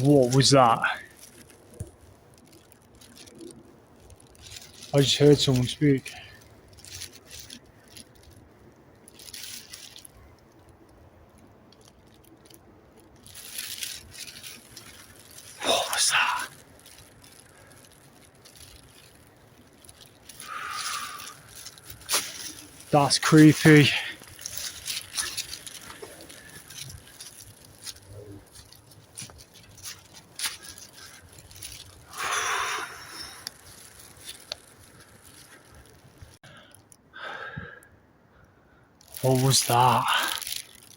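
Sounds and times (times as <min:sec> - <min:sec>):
footsteps crunching through leaves: 0:00.0 - 0:08.4, 0:11.8 - 0:36.4, 0:39.0 - 0:40.9
loud rustle: 0:00.0 - 0:36.5
twigs clicking: 0:00.0 - 0:37.0, 0:39.0 - 0:40.9.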